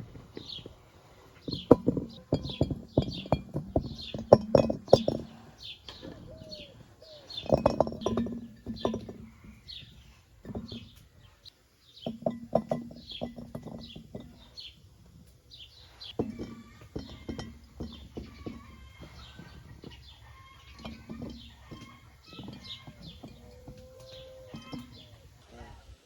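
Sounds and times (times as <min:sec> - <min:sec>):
bird chirping: 0:01.4 - 0:25.4
sharp clicks and knocks: 0:01.5 - 0:06.6, 0:16.1 - 0:25.2.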